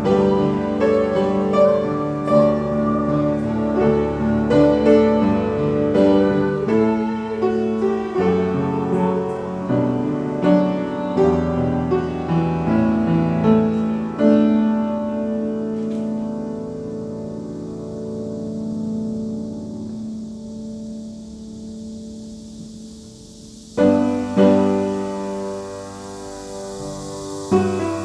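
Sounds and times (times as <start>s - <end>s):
piano playing slow chords: 0.0s - 28.0s.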